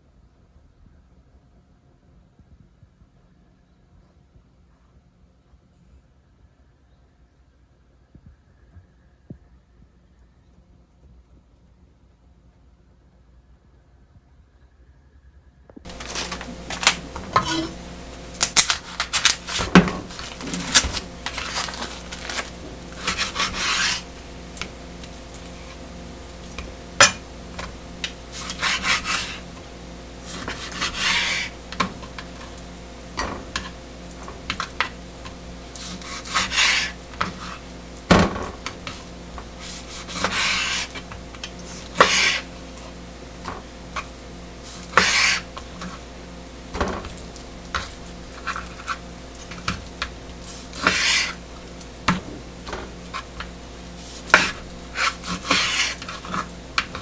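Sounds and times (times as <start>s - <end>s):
steady low hum: 15.8s - 57.0s
utensils scraping a bowl: 15.9s - 46.1s, 46.7s - 57.0s.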